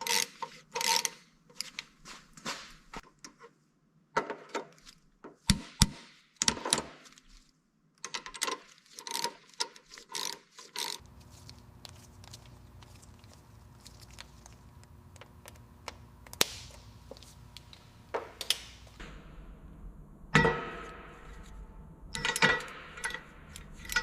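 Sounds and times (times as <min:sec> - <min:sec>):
steady low hum: 0:11.0 - 0:24.0.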